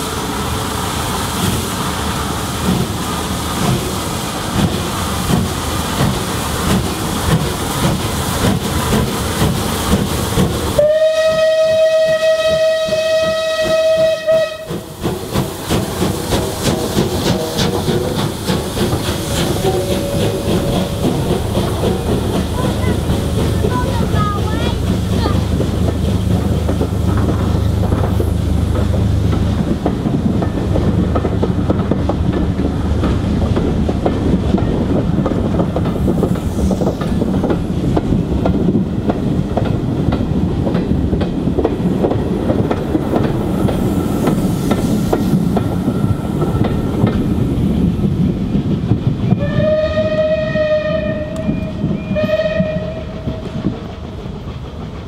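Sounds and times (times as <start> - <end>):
train whistle blasts: 10.8 - 14.8, 49.4 - 53.6.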